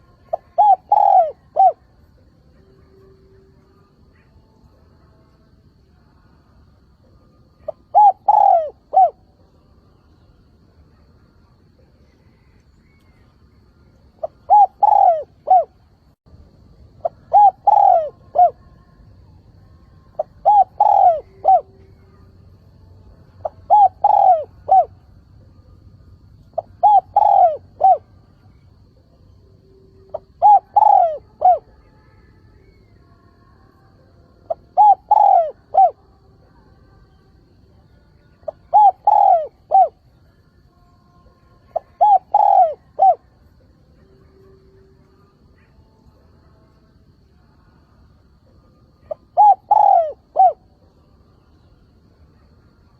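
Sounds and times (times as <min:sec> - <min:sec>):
dove cooing: 0:00.0 - 0:01.9, 0:07.5 - 0:09.3, 0:14.2 - 0:16.1, 0:16.9 - 0:18.7, 0:20.2 - 0:22.2, 0:23.4 - 0:25.0, 0:26.5 - 0:28.8, 0:30.0 - 0:31.8, 0:34.5 - 0:36.0, 0:38.4 - 0:40.0, 0:41.6 - 0:43.4, 0:49.0 - 0:50.7.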